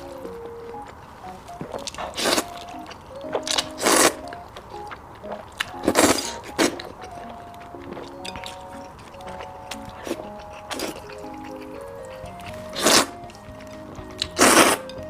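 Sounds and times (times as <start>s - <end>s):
soft background music: 0.0s - 15.0s
close-miked eating bites and slurps: 7.9s - 13.2s.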